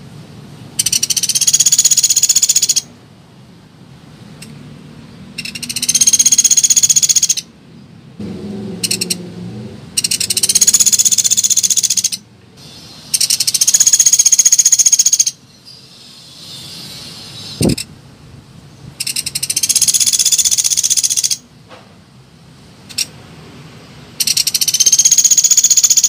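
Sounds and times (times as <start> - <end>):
woodpecker rattling trills: 0.8 - 2.9, 5.4 - 7.5, 8.8 - 9.2, 10.0 - 12.2, 13.1 - 16.7, 19.0 - 21.4, 24.2 - 26.0.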